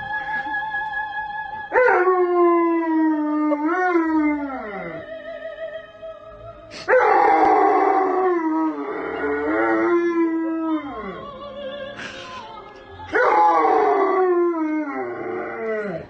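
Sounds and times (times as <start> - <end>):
dog howling: 6.9 - 11.2, 13.1 - 16.0.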